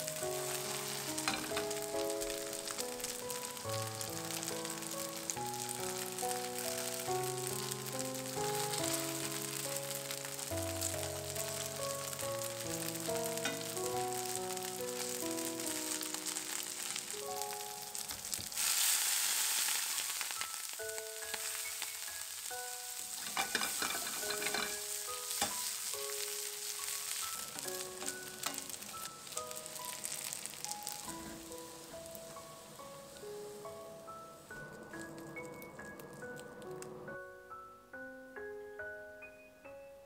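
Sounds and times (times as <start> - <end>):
food sizzling in a frying pan: 0.0 - 36.7
pan and utensil clicks: 1.2 - 1.7, 23.2 - 24.8.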